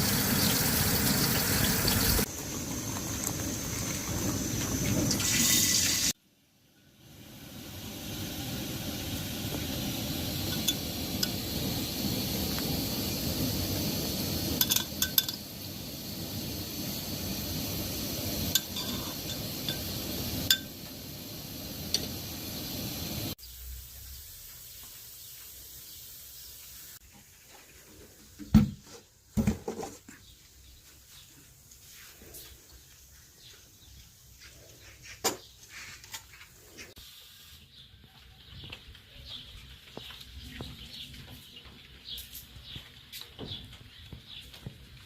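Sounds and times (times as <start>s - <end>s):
metal utensils and dishes clinking: 14.6s - 15.5s, 18.5s - 20.8s.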